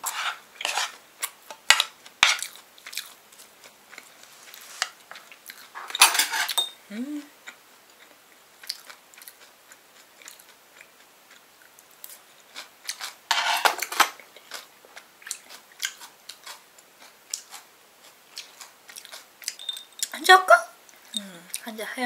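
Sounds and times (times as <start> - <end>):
cutlery scraping a dish: 0.0 - 1.0, 1.6 - 2.5, 5.7 - 6.8, 13.3 - 14.2
person chewing: 0.0 - 6.0, 7.4 - 13.2, 14.2 - 20.1.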